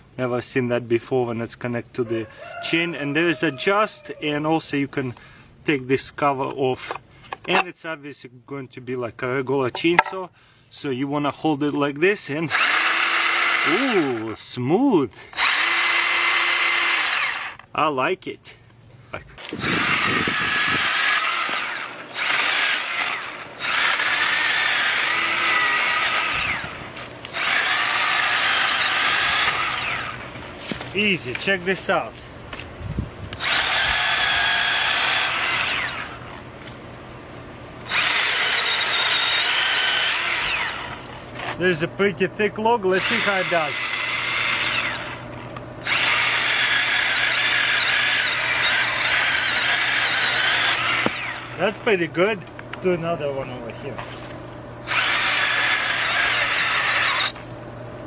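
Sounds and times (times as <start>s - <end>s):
electric chainsaw motor whining: 12.4s - 17.7s, 19.4s - 32.2s, 33.3s - 36.8s, 37.8s - 41.9s, 42.7s - 52.4s, 53.0s - 57.5s.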